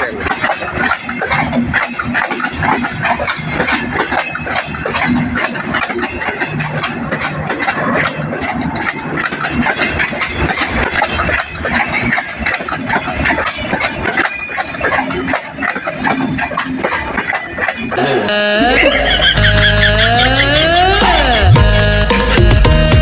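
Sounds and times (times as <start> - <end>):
train wheels clattering: 0.0 - 18.0
train engine: 0.0 - 23.0.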